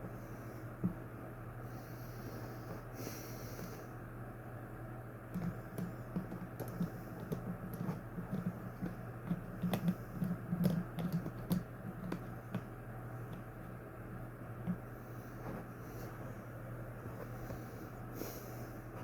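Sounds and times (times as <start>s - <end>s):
fan parts clicking and tapping: 0.0s - 1.1s, 5.3s - 19.0s
steady low hum: 0.0s - 19.0s.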